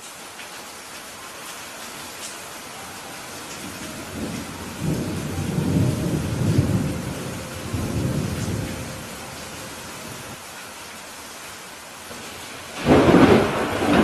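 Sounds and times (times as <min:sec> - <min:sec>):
heavy rain: 0:00.0 - 0:14.0
thunder rumbling: 0:02.8 - 0:10.4, 0:12.5 - 0:14.0.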